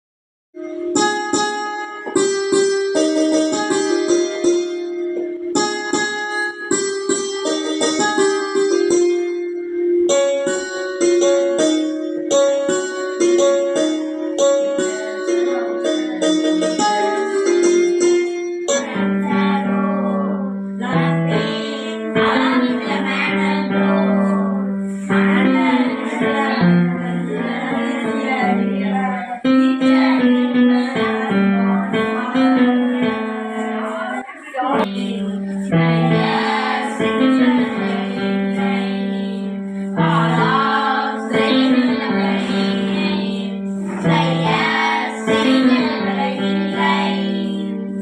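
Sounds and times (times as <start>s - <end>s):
electronic keyboard melody: 0.6s - 48.0s.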